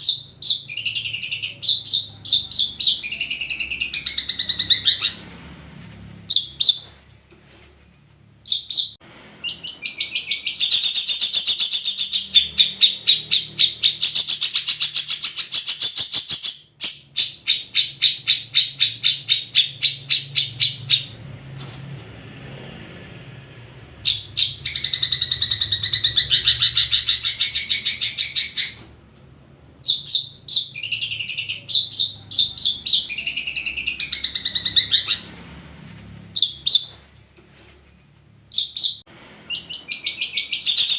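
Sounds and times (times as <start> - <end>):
bird chattering song: 0.0 - 5.2, 8.4 - 21.2, 24.0 - 28.8, 29.8 - 35.4, 36.4 - 37.0, 38.5 - 40.9.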